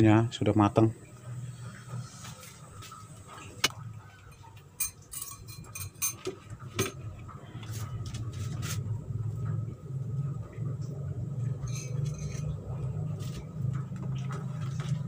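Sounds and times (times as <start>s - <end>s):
steady low hum: 0.0s - 15.0s
utensils clinking on dishes: 4.2s - 7.1s, 11.6s - 12.8s.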